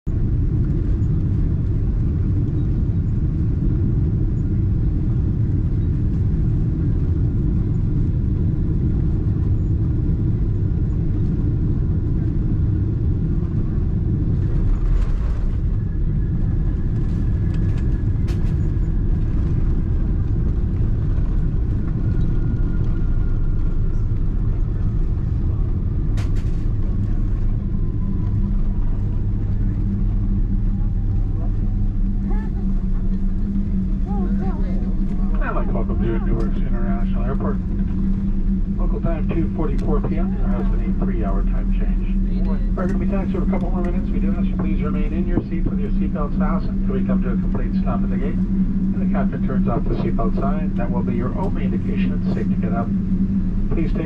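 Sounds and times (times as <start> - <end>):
wheels and engines rumbling: 0.1 - 54.0.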